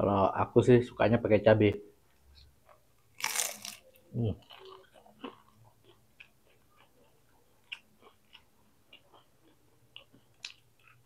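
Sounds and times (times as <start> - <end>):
person chewing: 2.4 - 11.0.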